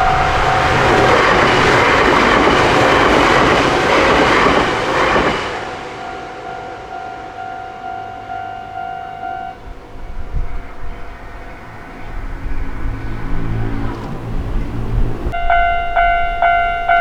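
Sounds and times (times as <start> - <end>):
level crossing warning bell: 0.0 - 3.6, 5.0 - 12.6, 15.3 - 17.0
train wheels clattering on rails: 0.0 - 6.0.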